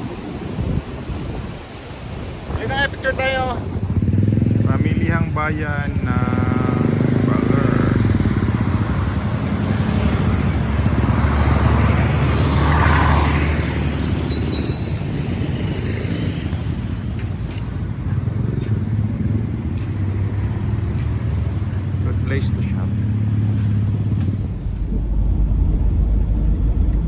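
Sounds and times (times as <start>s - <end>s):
wind and road noise: 0.0s - 27.0s
vehicle engine running: 17.9s - 27.0s.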